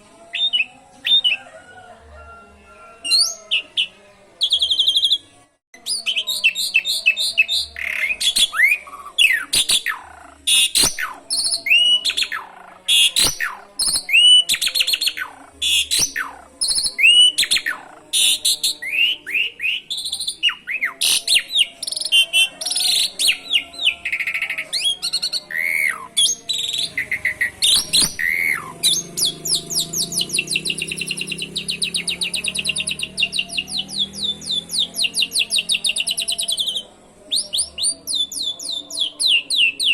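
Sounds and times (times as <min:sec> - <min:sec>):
myna singing whistles and trills: 0:00.0 - 0:01.7, 0:02.8 - 0:39.9.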